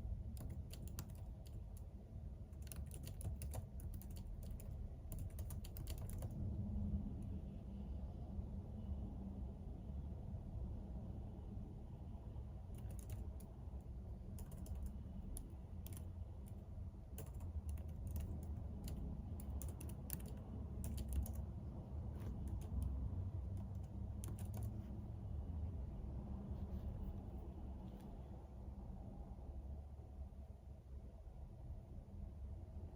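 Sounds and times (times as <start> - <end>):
steady low hum: 0.0 - 32.9
computer keyboard typing: 0.2 - 6.4, 12.7 - 25.0.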